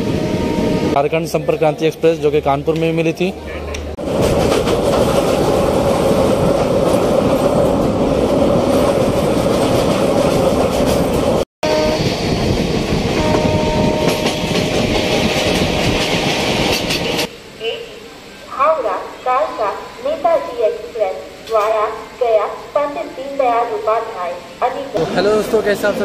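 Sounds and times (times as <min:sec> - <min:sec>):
train horn blast: 0:00.0 - 0:01.0, 0:11.6 - 0:12.1, 0:13.1 - 0:14.9
train wheels clattering on rails: 0:04.0 - 0:11.4, 0:12.1 - 0:17.3.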